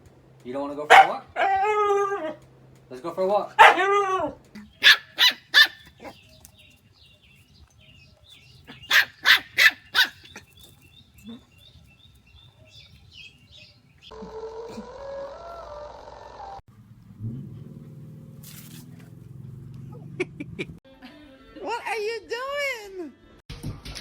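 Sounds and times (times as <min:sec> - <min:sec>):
dog barking: 0:00.9 - 0:02.4, 0:03.5 - 0:06.2, 0:08.7 - 0:10.4.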